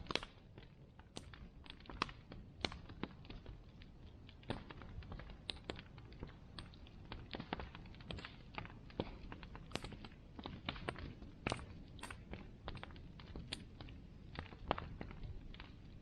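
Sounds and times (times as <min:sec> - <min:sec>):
bonfire crackling and popping: 0:00.0 - 0:16.0
low steady rush of fire: 0:00.0 - 0:16.0.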